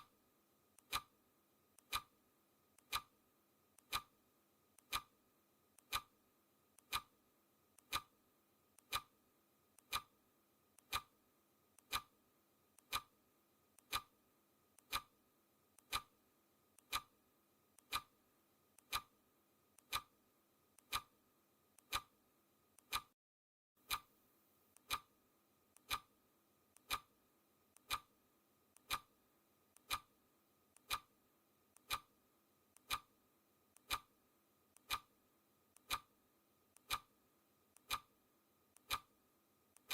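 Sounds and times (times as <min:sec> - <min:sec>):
clock ticking: 0:00.8 - 0:01.1, 0:01.8 - 0:02.1, 0:02.8 - 0:03.1, 0:03.8 - 0:04.1, 0:04.8 - 0:05.1, 0:05.8 - 0:06.1, 0:06.8 - 0:07.1, 0:07.8 - 0:08.1, 0:08.8 - 0:09.1, 0:09.8 - 0:10.1, 0:10.8 - 0:11.1, 0:11.8 - 0:12.1, 0:12.8 - 0:13.1, 0:13.8 - 0:14.1, 0:14.8 - 0:15.1, 0:15.8 - 0:16.1, 0:16.8 - 0:17.1, 0:17.8 - 0:18.2, 0:18.8 - 0:19.1, 0:19.8 - 0:20.2, 0:20.8 - 0:21.1, 0:21.8 - 0:22.1, 0:22.8 - 0:23.1, 0:23.8 - 0:24.1, 0:24.8 - 0:25.1, 0:25.8 - 0:26.1, 0:26.8 - 0:27.1, 0:27.8 - 0:28.1, 0:28.8 - 0:29.1, 0:29.8 - 0:30.1, 0:30.8 - 0:31.1, 0:31.8 - 0:32.1, 0:32.8 - 0:33.1, 0:33.8 - 0:34.2, 0:34.8 - 0:35.1, 0:35.8 - 0:36.1, 0:36.8 - 0:37.1, 0:37.8 - 0:38.1, 0:38.8 - 0:39.1.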